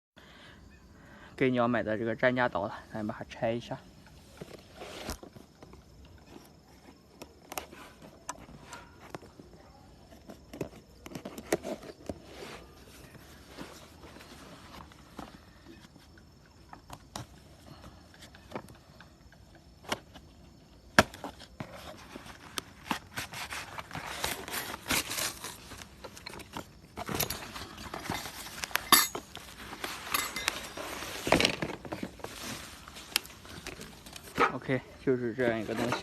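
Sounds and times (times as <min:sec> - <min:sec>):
packaging rustling: 0:21.5 - 0:34.4
clinks and knocks: 0:27.0 - 0:31.7.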